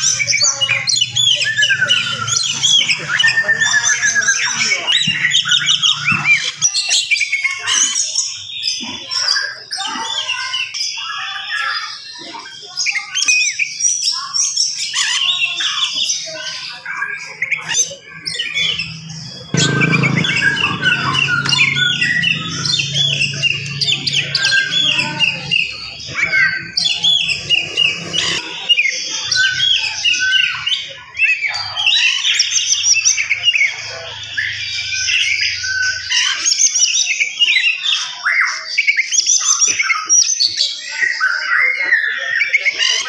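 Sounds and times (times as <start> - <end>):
songbird singing: 9.8 - 38.4.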